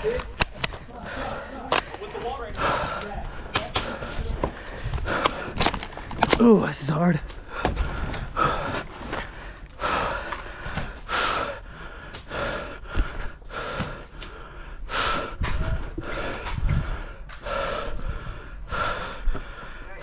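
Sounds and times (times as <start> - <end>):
sharp clicks: 0.0 - 0.9, 3.0 - 4.2
person panting heavily: 0.0 - 6.4, 7.2 - 20.0.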